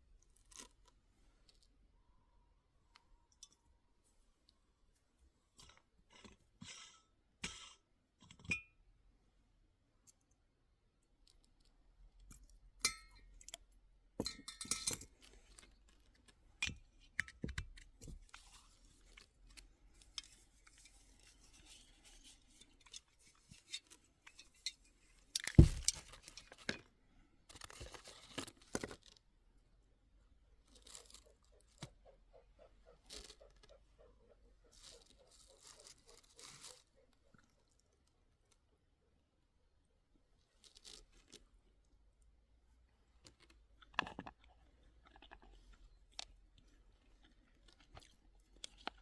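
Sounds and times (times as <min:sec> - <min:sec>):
crunching and rustling: 0:18.0 - 0:26.9, 0:27.5 - 0:29.2, 0:30.5 - 0:37.3, 0:43.2 - 0:49.0
objects clicking and clinking: 0:22.6 - 0:26.9.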